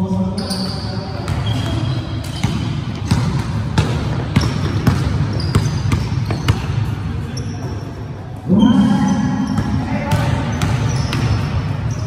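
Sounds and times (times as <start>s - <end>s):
voices echoing in gym: 0.0s - 12.0s
sneaker squeaks: 0.2s - 3.5s, 4.1s - 12.0s
basketball bouncing on wooden floor: 1.2s - 6.8s, 9.5s - 11.5s.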